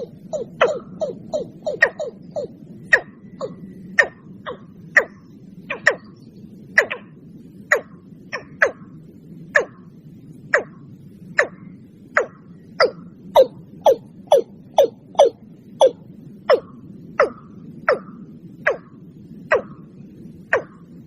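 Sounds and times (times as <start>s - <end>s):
watercock calling: 0.0s - 6.1s, 6.8s - 7.0s, 7.7s - 8.8s, 9.6s - 9.8s, 10.6s - 10.8s, 12.2s - 18.1s, 18.7s - 18.9s, 20.5s - 20.8s
low steady background hiss: 0.0s - 21.0s.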